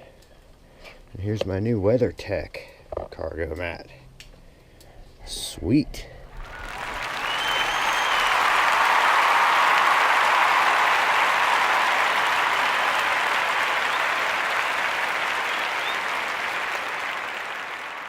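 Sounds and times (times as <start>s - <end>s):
crowd applause: 6.3s - 18.0s.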